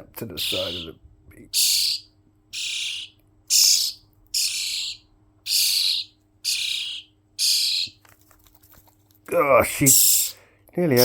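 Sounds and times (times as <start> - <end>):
baby bird begging calls: 0.4 - 8.0.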